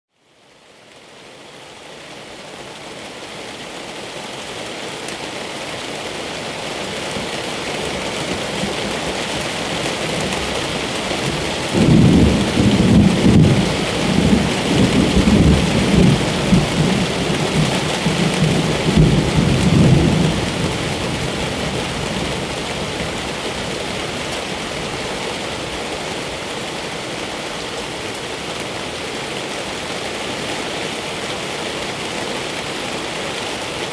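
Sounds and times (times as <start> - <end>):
steady rain: 0.1 - 33.9
thunder rolling: 11.3 - 22.5.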